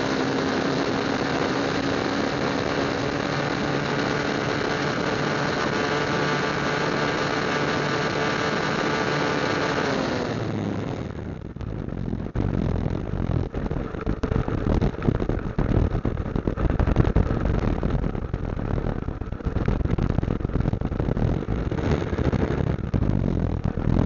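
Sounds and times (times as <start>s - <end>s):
road noise: 0.0s - 16.6s, 18.2s - 24.0s
motorcycle engine running: 0.0s - 24.0s
low uneven rumbling: 11.0s - 24.0s.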